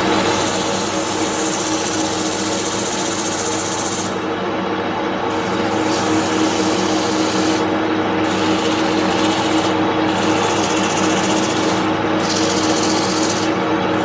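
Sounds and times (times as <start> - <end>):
wood lathe motor hum: 5.4 - 14.0.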